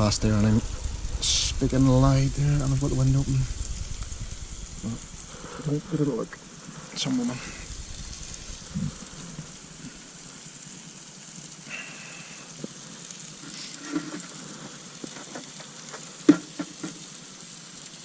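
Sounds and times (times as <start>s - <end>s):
peppers sizzling in a pan: 0.0s - 18.0s
small clicks and knocks: 13.5s - 17.1s.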